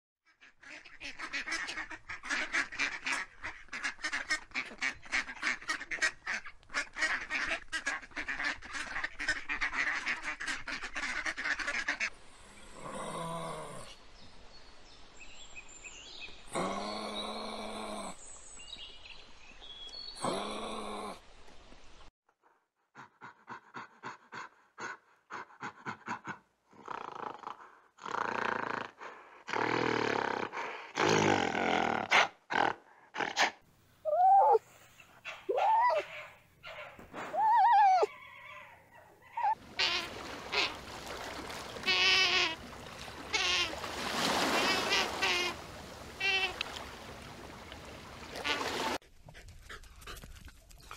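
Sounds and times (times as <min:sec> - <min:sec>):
ducks quacking: 0:00.3 - 0:12.1, 0:39.3 - 0:46.8
long drawn-out animal calls: 0:34.0 - 0:34.8, 0:35.5 - 0:36.3, 0:37.3 - 0:41.0, 0:41.6 - 0:43.8, 0:44.4 - 0:45.6, 0:46.2 - 0:46.6.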